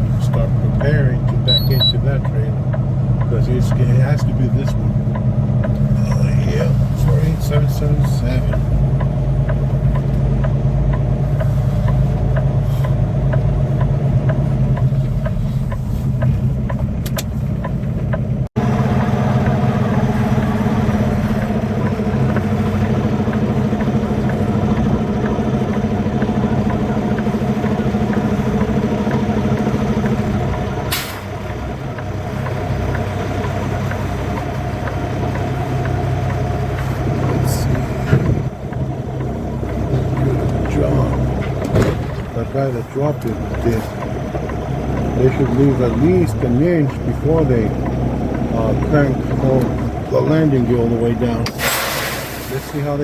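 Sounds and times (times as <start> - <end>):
truck diesel engine idling: 0.0 - 53.0
short burst of air: 51.6 - 52.8.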